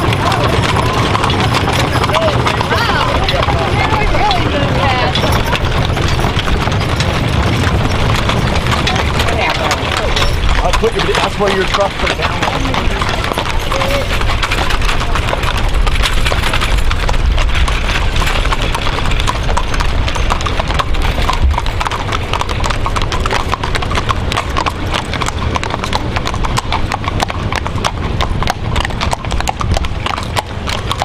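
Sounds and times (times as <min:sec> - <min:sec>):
horse hooves clip-clopping: 0:00.0 - 0:31.0.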